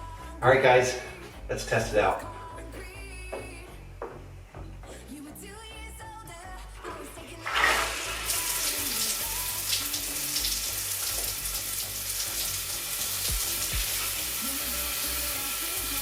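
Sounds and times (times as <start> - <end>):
shower water spraying: 7.4 - 16.0.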